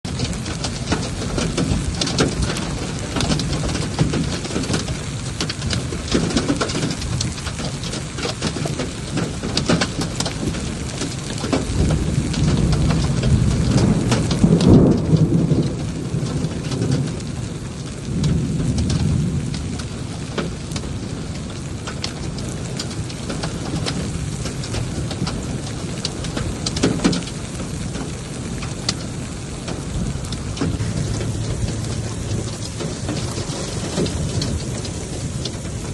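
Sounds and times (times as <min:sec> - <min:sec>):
heavy rain: 0:00.0 - 0:35.9
raindrops ticking on hard surfaces: 0:00.0 - 0:35.9
rolling thunder: 0:00.1 - 0:35.9.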